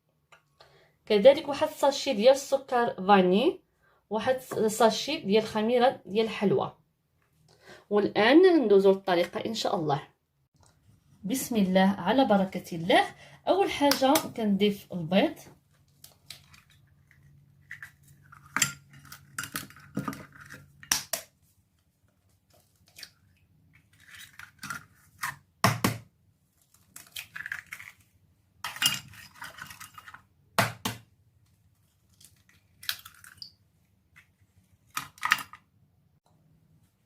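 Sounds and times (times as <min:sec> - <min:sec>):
eggshell crackling: 0:26.6 - 0:28.2, 0:32.0 - 0:33.6.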